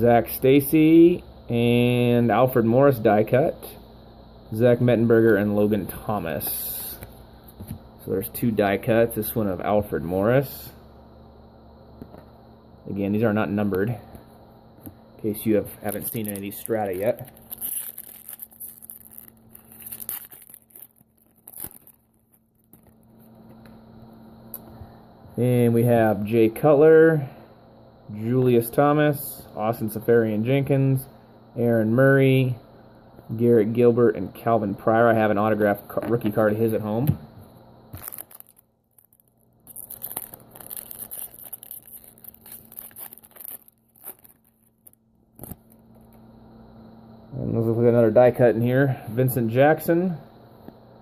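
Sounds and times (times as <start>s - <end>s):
card pack wrapper rustling: 15.8s - 23.1s, 37.9s - 45.8s
wrapper crinkles: 15.8s - 23.1s, 37.9s - 45.7s.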